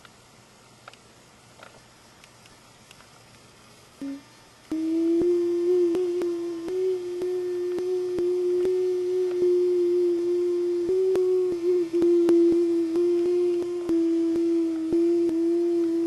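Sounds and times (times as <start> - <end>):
person humming vehicle sound: 4.0 - 16.0.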